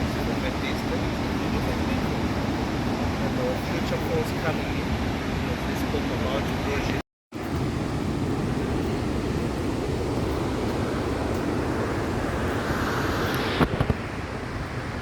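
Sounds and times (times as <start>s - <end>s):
wind buffeting microphone: 7.4s - 15.0s.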